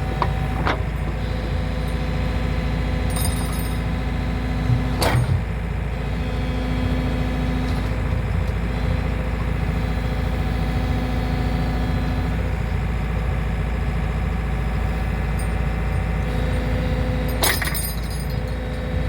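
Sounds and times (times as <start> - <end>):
excavator engine running: 0.0 - 19.0
sharp metal clank: 17.3 - 18.8.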